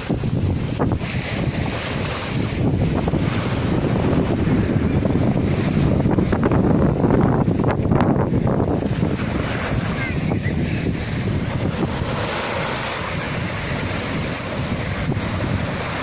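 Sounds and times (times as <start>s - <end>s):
sea waves breaking on shore: 0.0s - 16.0s
wind buffeting microphone: 0.0s - 16.0s.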